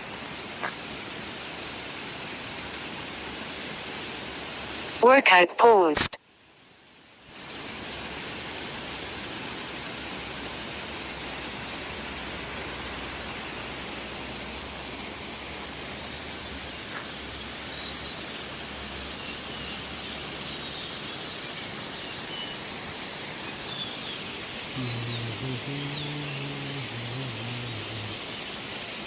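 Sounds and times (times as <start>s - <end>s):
faint bird chirps: 17.6s - 28.2s
waterfall rushing: 21.1s - 29.0s.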